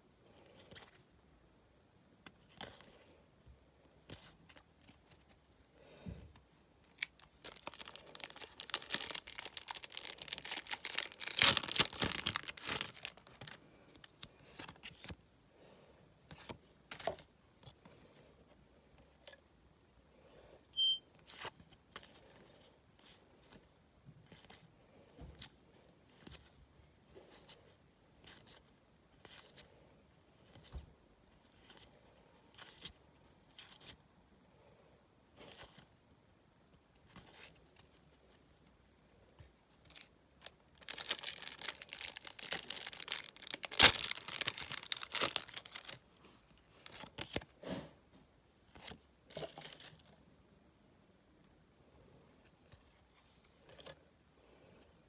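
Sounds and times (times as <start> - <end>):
card packet torn open: 7.0 - 13.6, 40.8 - 46.0
wrapper crinkling: 7.0 - 14.2, 39.9 - 46.1
cards clicking and rustling: 40.8 - 46.0.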